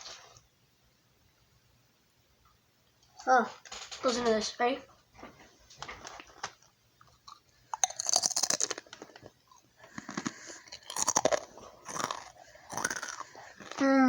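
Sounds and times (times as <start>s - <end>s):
person crunching potato chips: 7.0s - 14.0s.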